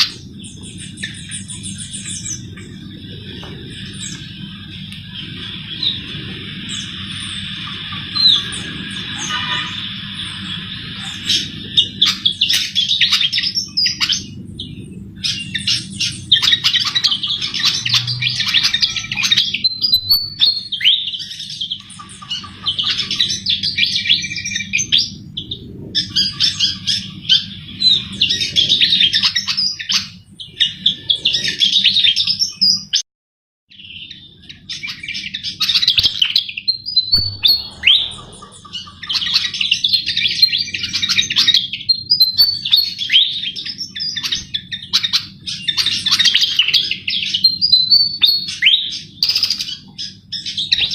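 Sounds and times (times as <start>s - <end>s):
bird twittering song: 0.0s - 33.0s, 33.7s - 50.9s
steady low hum: 36.8s - 40.3s.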